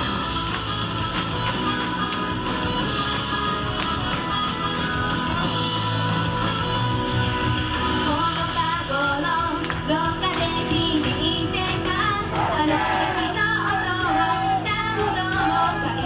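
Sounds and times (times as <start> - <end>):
live band music: 0.0 - 8.7.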